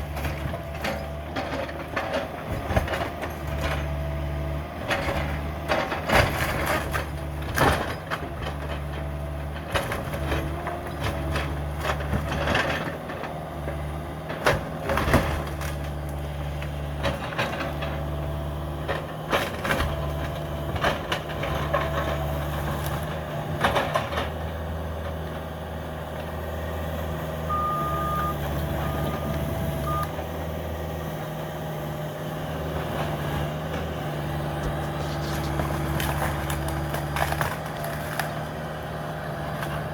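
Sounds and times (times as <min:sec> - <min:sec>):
excavator diesel engine running: 0:00.0 - 0:39.9
cracks and crunches of demolition: 0:04.8 - 0:18.1, 0:34.5 - 0:39.9
short high beeps: 0:27.5 - 0:30.1.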